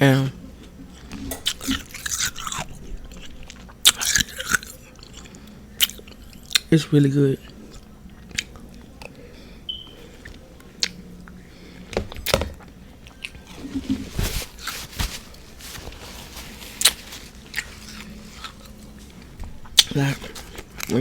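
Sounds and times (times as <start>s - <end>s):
soft chewing: 0.6s - 21.0s
crunching bites of frost: 16.5s - 18.6s.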